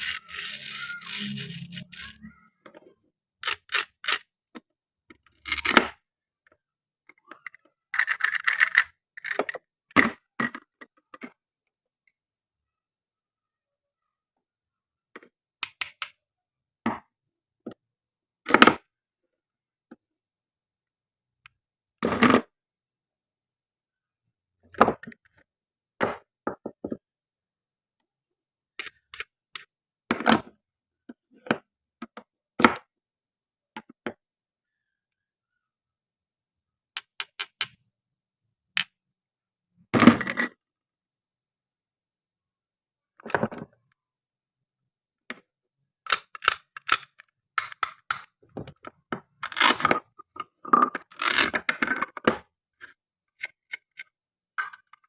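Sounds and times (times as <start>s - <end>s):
toy food pieces clacking: 0.0s - 2.3s, 3.4s - 4.2s, 8.0s - 9.5s.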